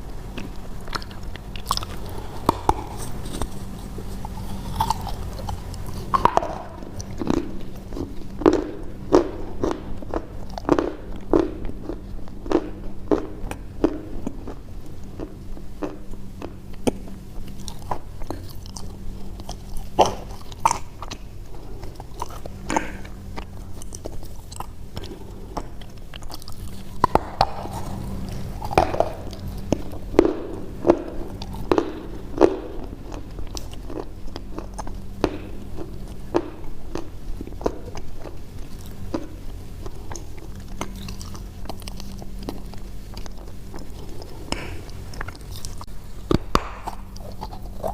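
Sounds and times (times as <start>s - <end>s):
chewing crunchy food: 0.0s - 47.9s
faint low hum: 0.0s - 47.9s.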